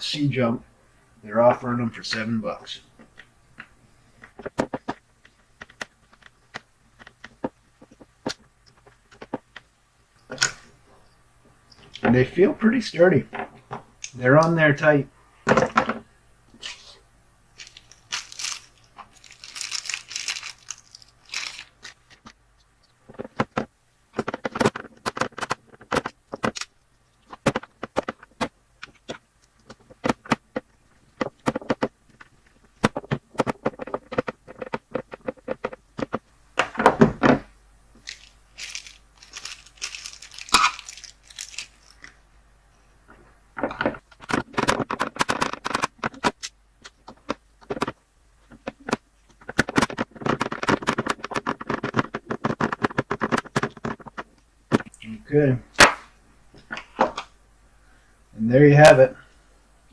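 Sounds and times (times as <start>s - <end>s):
rustling: 17.6s - 36.4s, 37.1s - 58.0s.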